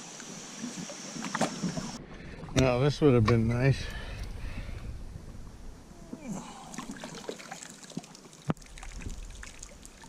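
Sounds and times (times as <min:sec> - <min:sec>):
creek water trickling: 0:00.0 - 0:10.0.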